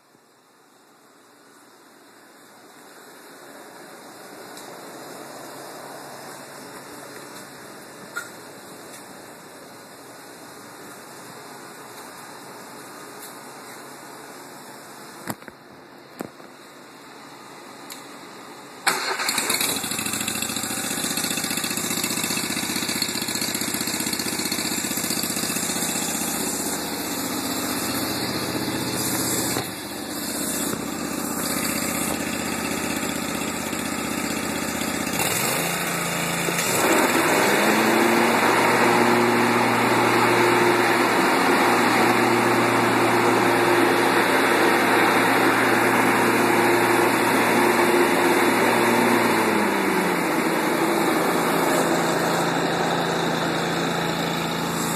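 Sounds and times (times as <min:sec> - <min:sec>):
lawnmower engine running: 0:18.8 - 0:54.9.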